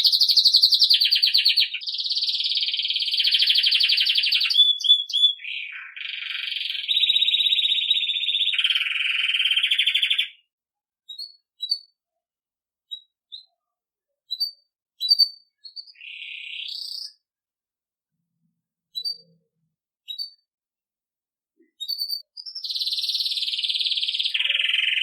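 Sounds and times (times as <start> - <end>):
canary trilling: 0.0 - 10.4, 11.1 - 11.9, 14.3 - 17.2, 19.0 - 19.4, 21.8 - 25.0
canary chirps: 0.0 - 10.5, 11.1 - 12.0, 12.9 - 17.3, 18.9 - 20.4, 21.6 - 25.0.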